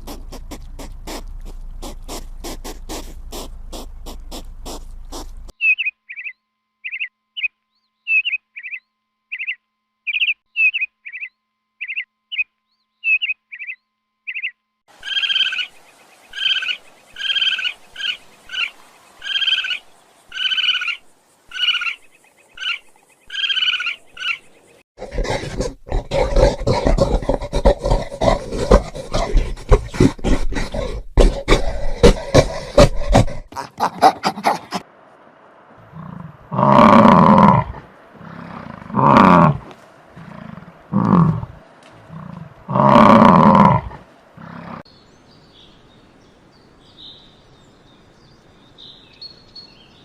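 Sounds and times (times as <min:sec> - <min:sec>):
animal pitched calls: 0:00.0 - 0:05.5, 0:25.0 - 0:34.9
bird chirping: 0:03.1 - 0:24.8, 0:44.9 - 0:50.0
noisy animal sound with rapid clicks: 0:25.0 - 0:34.8.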